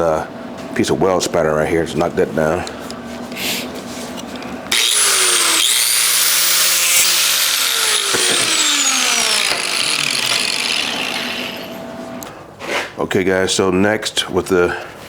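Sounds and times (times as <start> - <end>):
angle grinder grinding steel: 4.7 - 12.2.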